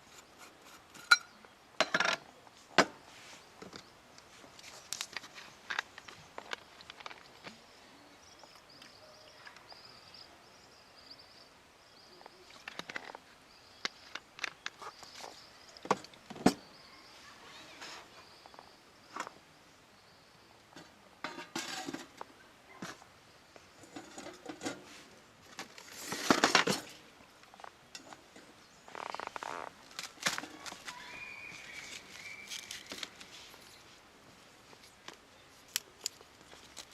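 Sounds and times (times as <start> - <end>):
rustling: 23.8 - 36.9.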